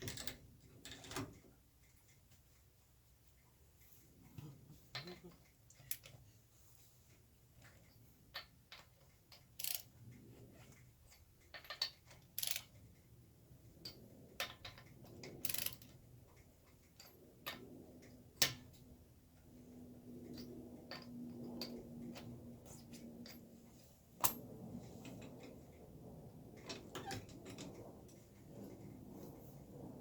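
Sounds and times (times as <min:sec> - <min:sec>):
tools clicking and knocking: 0:04.9 - 0:06.2, 0:07.6 - 0:13.0.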